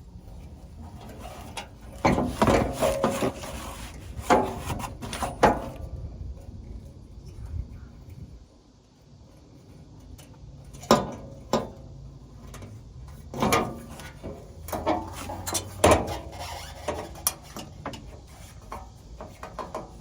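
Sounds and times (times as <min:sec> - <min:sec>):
rubbing and scraping: 0:00.3 - 0:05.8, 0:13.2 - 0:20.0
knocks and clatters of car parts: 0:00.9 - 0:05.9, 0:10.1 - 0:20.0.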